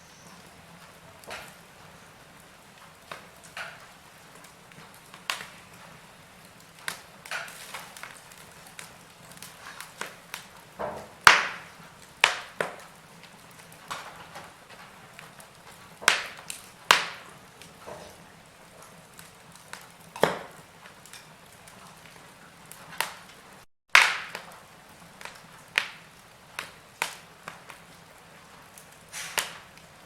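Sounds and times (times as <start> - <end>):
wood fire crackling and popping: 0.0 - 30.0
faint hiss: 28.6 - 29.8.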